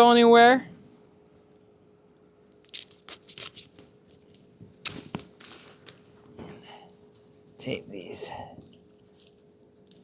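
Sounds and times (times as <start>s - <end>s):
duct tape ripping: 2.5s - 6.1s.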